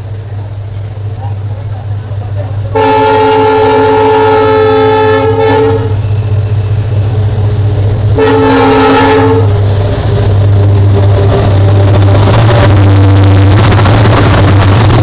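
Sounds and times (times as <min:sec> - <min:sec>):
moving train rumble: 0:00.0 - 0:15.0
locomotive horn blasts: 0:02.7 - 0:06.0, 0:08.2 - 0:09.6.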